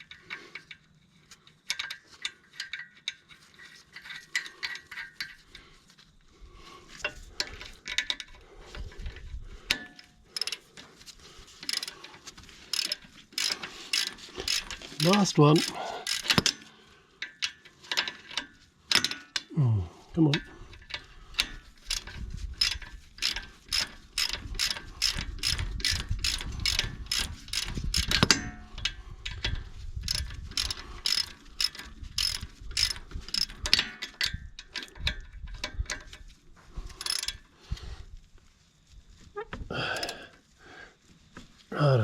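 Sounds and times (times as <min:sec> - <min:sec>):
hand ratchet wrench clicking: 0:09.2 - 0:10.7, 0:11.6 - 0:12.1, 0:12.7 - 0:19.4, 0:20.3 - 0:36.1, 0:36.9 - 0:37.8, 0:40.0 - 0:40.2.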